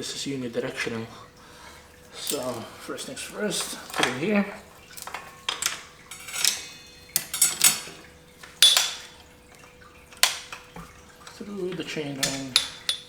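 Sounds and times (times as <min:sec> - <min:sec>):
bicycle chain links clinking: 0:02.0 - 0:13.0.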